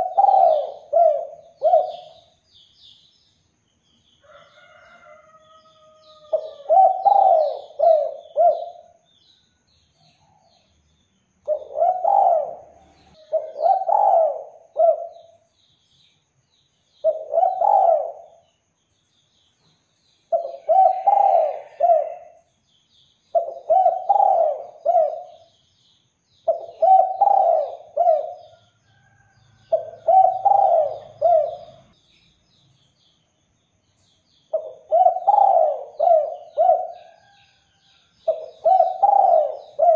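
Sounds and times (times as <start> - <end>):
dove cooing: 0.0 - 2.4, 6.0 - 9.0, 11.4 - 15.4, 17.0 - 18.4, 20.3 - 22.4, 23.3 - 25.5, 26.4 - 28.6, 29.7 - 31.9, 34.5 - 37.4, 38.2 - 39.9
faint songbird chirps: 0.0 - 39.9.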